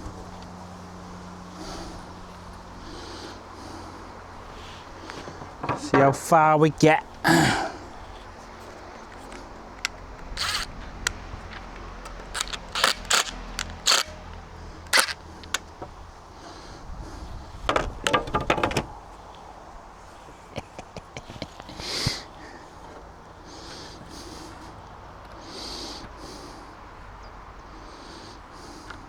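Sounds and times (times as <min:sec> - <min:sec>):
staples pried out of wood: 0:08.0 - 0:15.8.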